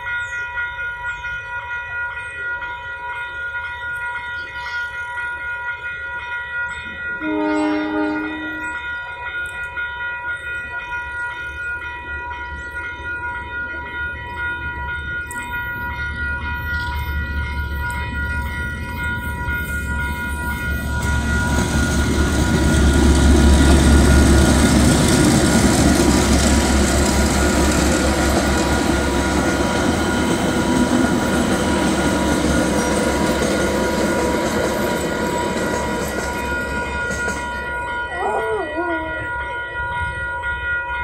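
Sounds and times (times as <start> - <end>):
train wheels rumbling: 5.2 - 41.0
crossing alarm tones: 6.6 - 9.8, 10.6 - 41.0
diesel engines humming: 17.1 - 37.8.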